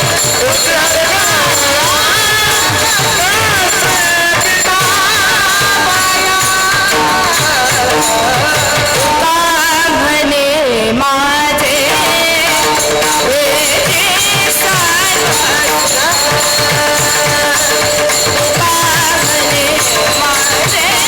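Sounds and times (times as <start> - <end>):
percussion beat: 0.0 - 10.2, 11.6 - 21.0
instrumental accompaniment: 0.0 - 21.0
person singing devotional song: 0.0 - 21.0.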